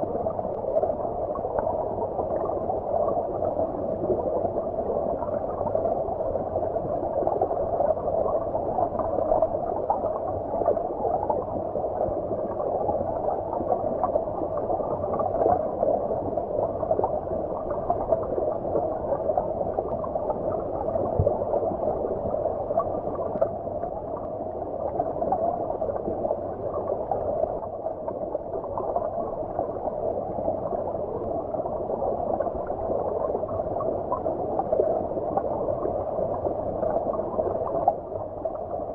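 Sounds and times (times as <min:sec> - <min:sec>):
muffled underwater stream rush: 0:00.0 - 0:38.9.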